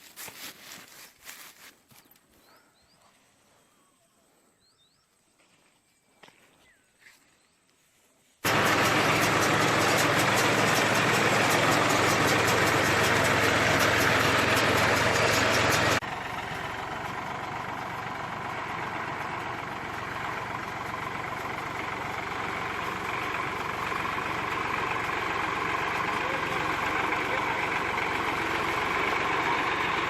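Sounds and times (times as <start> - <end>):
baler machinery clattering: 8.4 - 30.0
tractor engine running: 8.4 - 30.0.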